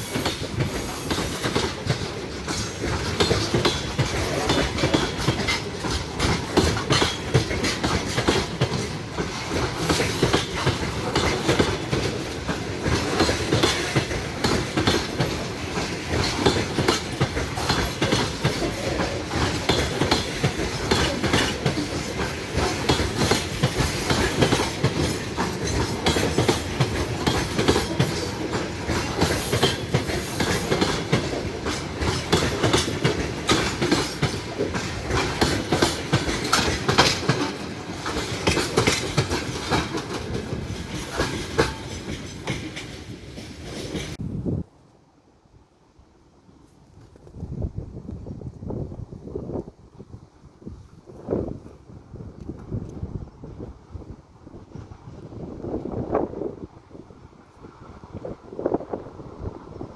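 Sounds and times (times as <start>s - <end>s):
train wheels clacking on rail joints: 0.0s - 44.2s
train rumble: 0.0s - 59.9s.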